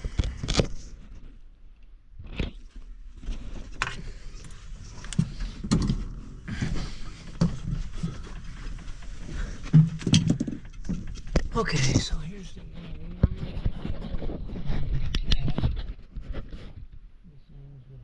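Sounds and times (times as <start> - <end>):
plastic housing clicks and scrapes: 0.0 - 0.9.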